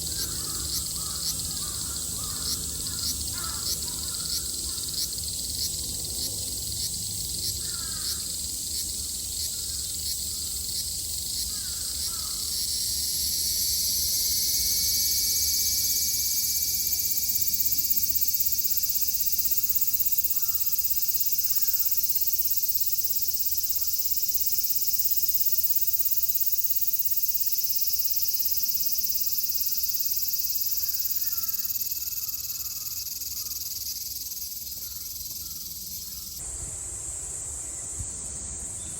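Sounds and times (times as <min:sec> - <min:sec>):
cicadas buzzing: 0:00.0 - 0:38.9
crows cawing faintly: 0:00.1 - 0:05.0, 0:07.6 - 0:08.3, 0:11.5 - 0:12.5, 0:20.3 - 0:20.8, 0:21.4 - 0:22.0, 0:30.7 - 0:36.4.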